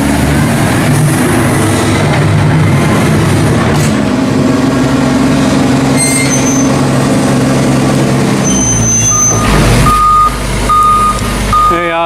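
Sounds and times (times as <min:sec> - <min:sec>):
diesel engine running: 0:00.0 - 0:12.0
reversing beeper: 0:08.4 - 0:11.9.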